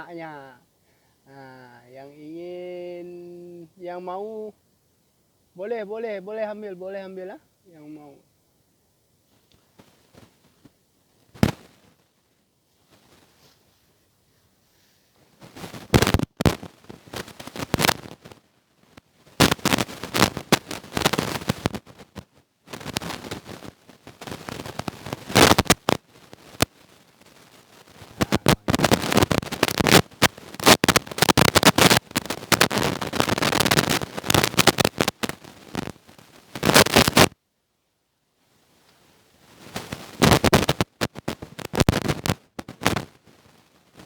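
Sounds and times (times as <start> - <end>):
loud rustling and crackling: 12.8 - 13.9, 14.8 - 37.4, 39.5 - 44.0.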